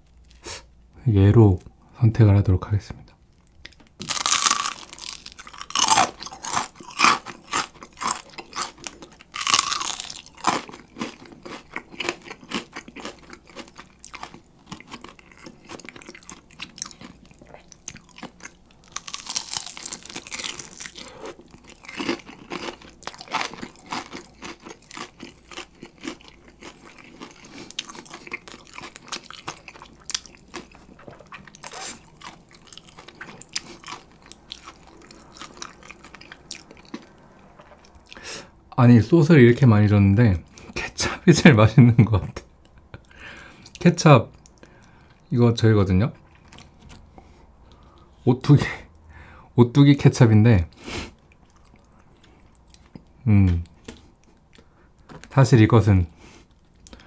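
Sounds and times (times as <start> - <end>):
crunchy chewing: 3.4 - 38.2
crunching bites of fried chicken: 4.0 - 37.2.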